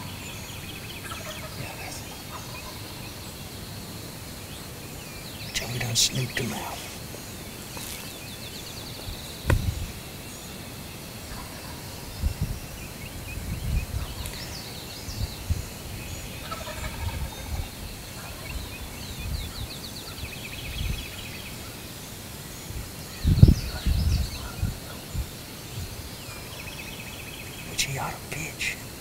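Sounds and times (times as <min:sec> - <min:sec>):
songbirds trilling: 0:00.0 - 0:29.0
thumps on microphone: 0:09.4 - 0:09.9
distant turkey gobbling: 0:16.4 - 0:17.5.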